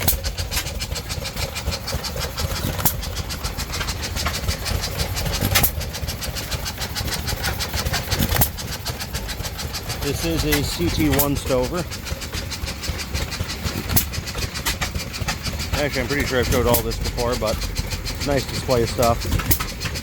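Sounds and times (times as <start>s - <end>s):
engine firing pop: 0.0s - 9.2s, 13.1s - 15.8s, 19.1s - 20.0s
stationary gas engines clattering: 0.0s - 20.0s.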